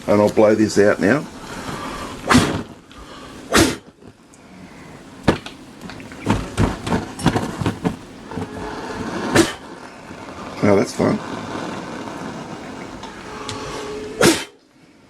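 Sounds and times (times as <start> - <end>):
puffs of breath blowing: 1.3 - 5.2, 11.5 - 15.0.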